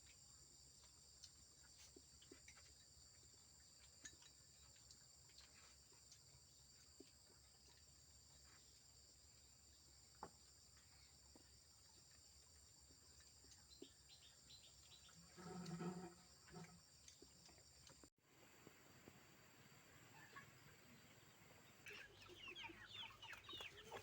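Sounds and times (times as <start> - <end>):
insect drone: 14.1 - 21.9.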